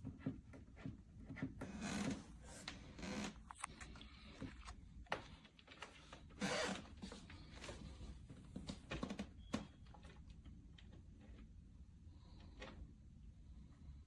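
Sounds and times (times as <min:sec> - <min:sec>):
faint clicks and knocks: 0:07.0 - 0:11.7.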